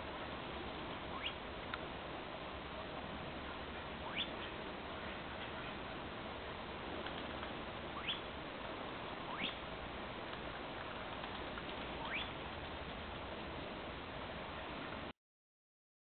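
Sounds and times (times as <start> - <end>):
steady hiss: 0.0 - 15.1
squeaky bird calls: 1.1 - 1.4, 4.1 - 4.6, 8.0 - 8.3, 9.3 - 9.6, 12.0 - 12.4.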